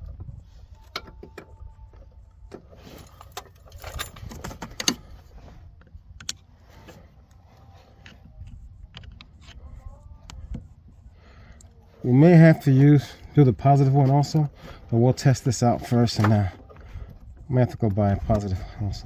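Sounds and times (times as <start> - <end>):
wrench and metal terminals clinking: 3.0 - 5.0.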